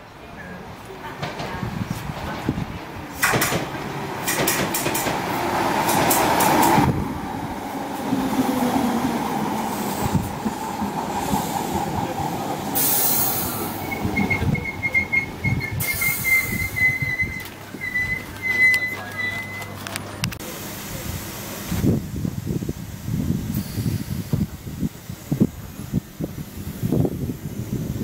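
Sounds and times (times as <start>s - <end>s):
train running slowly: 0.0s - 28.0s
wind buffeting microphone: 1.2s - 18.4s, 21.0s - 28.0s
train wheels and brakes squealing: 12.7s - 19.8s, 23.6s - 24.2s.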